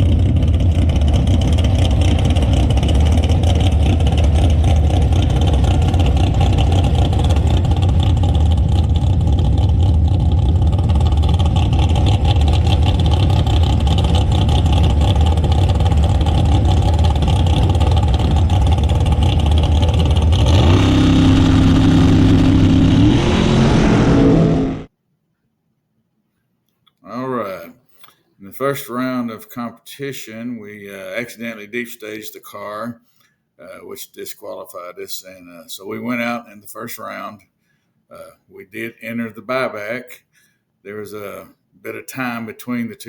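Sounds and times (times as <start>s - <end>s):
race car engine revving: 0.0s - 24.9s.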